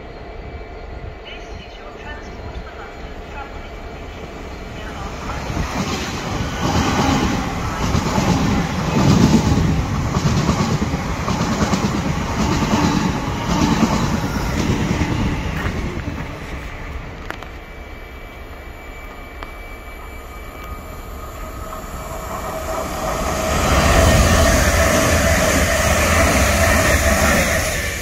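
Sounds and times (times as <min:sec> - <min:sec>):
train wheels beating over rails: 0:05.6 - 0:17.7.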